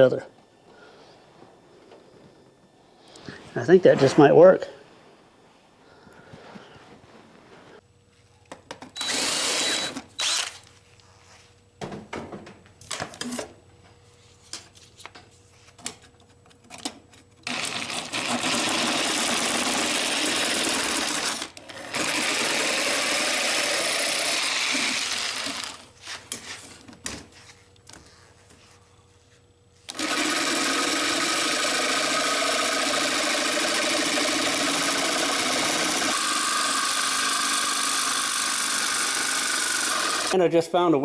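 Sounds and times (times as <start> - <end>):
power tool running: 9.0 - 10.7, 17.4 - 25.9, 29.9 - 40.4.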